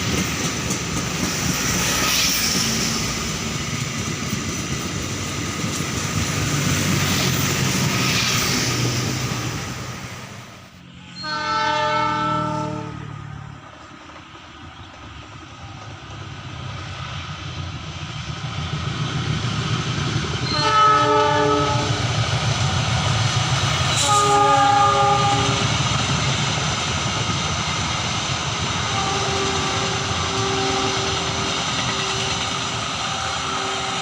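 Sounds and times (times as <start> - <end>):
train rumble passing: 0.0 - 34.0
train horn: 11.0 - 13.4, 20.4 - 22.0, 23.9 - 25.7, 28.8 - 34.0.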